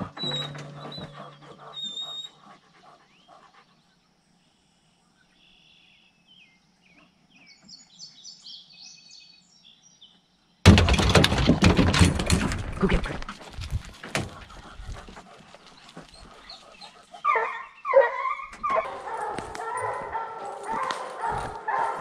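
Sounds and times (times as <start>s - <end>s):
small songbird chirping: 0.1s - 10.6s
clatter: 10.7s - 14.3s.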